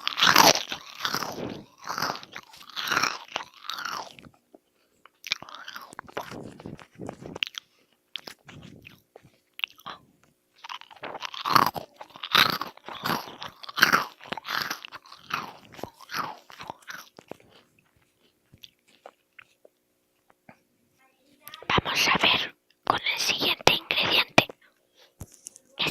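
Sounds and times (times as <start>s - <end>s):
person chewing crunchy food: 0.0s - 20.6s.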